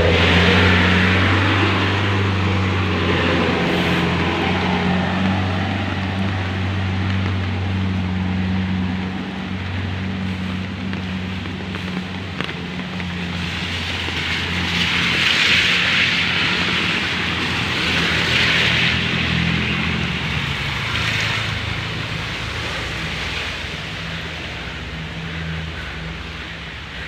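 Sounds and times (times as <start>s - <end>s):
vehicle engine humming: 0.0s - 27.0s
rushing hiss: 0.1s - 8.6s.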